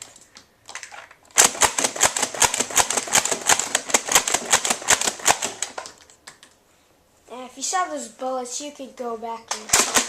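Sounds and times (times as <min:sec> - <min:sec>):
toy dart blaster rapid firing: 0:01.4 - 0:05.8, 0:09.6 - 0:10.0.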